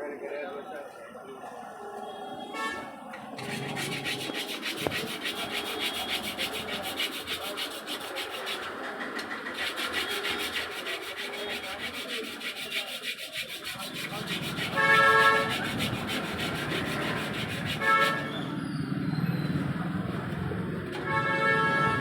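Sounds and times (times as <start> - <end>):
rapid rhythmic rubbing: 3.4 - 18.5.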